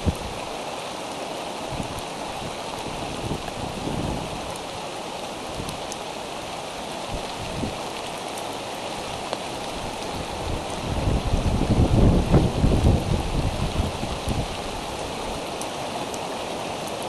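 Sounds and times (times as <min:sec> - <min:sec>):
steady rain falling: 0:00.0 - 0:17.0
single raindrops ticking: 0:05.5 - 0:06.1.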